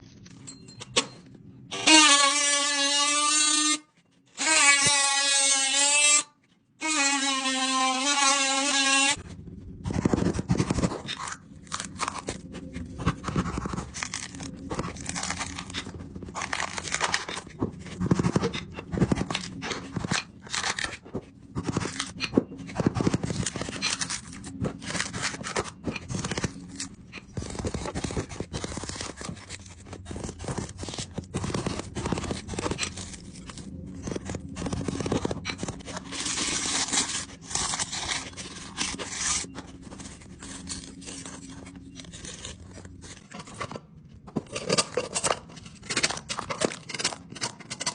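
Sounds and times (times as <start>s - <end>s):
scraping and rubbing strokes: 9.9s - 43.4s.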